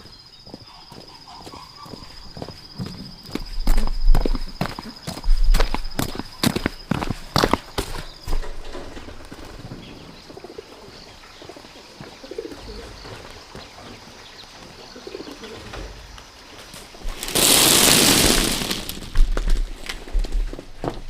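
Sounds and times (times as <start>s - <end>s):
doves cooing: 8.3s - 16.2s.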